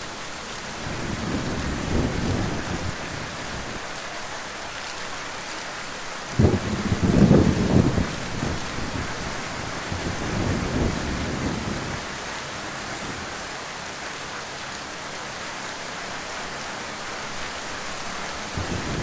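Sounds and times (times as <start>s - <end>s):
heavy rain falling: 0.0s - 19.0s
thunder rumble: 0.8s - 3.9s, 6.4s - 12.2s, 18.6s - 19.0s.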